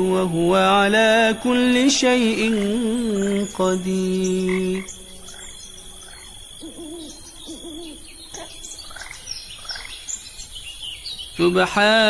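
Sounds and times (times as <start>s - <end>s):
low wavering hooting call: 0.0s - 9.1s
high insect drone: 0.0s - 12.0s.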